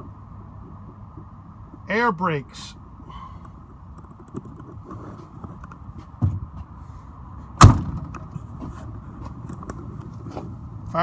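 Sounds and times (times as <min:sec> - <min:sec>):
light thump: 0:07.6 - 0:08.3
truck door slamming: 0:07.6 - 0:08.4.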